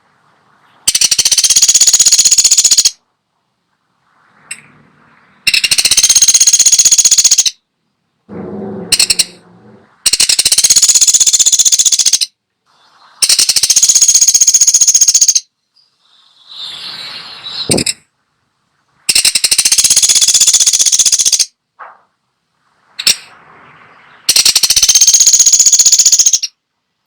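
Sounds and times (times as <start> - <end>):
woodpecker rattling calls: 0.9 - 3.0, 5.5 - 7.6, 8.9 - 9.4, 10.1 - 12.3, 13.2 - 15.5, 17.5 - 18.0, 19.1 - 21.5, 24.0 - 26.6
lower bird call: 8.3 - 18.2, 19.1 - 26.6.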